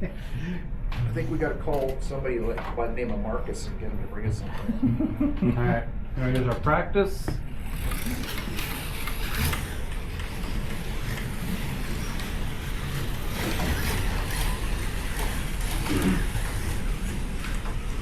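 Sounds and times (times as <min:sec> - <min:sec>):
slot cars whirring: 0:07.4 - 0:18.0.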